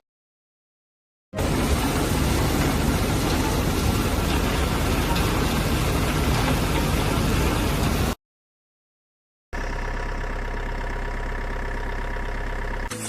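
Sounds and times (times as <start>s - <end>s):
machine engine running: 1.4s - 8.2s, 9.6s - 13.0s.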